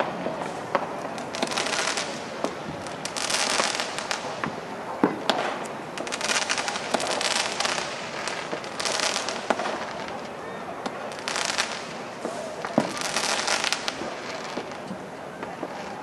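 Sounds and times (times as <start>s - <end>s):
fireworks bangs and crackling: 0.0s - 16.0s.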